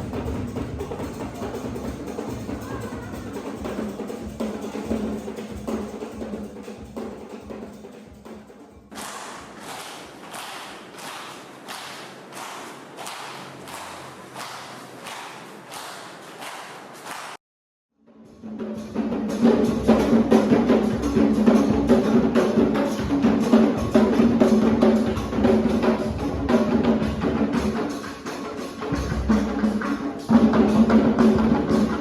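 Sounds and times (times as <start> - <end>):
fast drum beat: 0.0 - 9.6, 18.6 - 32.0.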